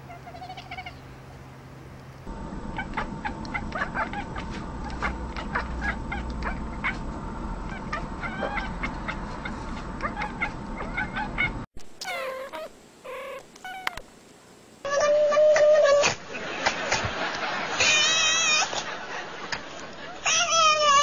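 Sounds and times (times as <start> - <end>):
cats chattering chirps: 0.0 - 1.1, 7.6 - 14.0
cat meowing: 17.8 - 18.7, 20.3 - 21.0.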